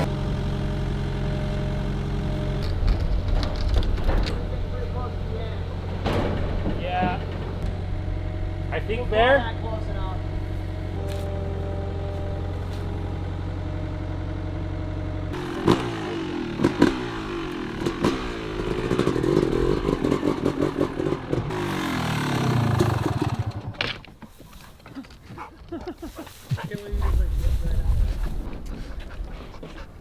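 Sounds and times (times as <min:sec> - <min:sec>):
sharp clattering knocks: 0:02.4 - 0:08.1
dirt bike engine revving: 0:15.3 - 0:23.8.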